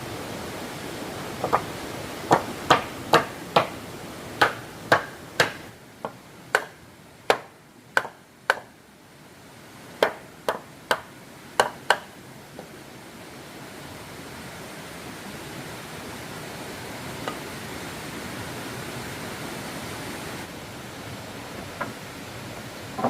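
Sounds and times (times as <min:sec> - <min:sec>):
hand tool striking wood: 0:01.4 - 0:01.7, 0:02.3 - 0:03.8, 0:04.4 - 0:08.7, 0:10.0 - 0:12.1.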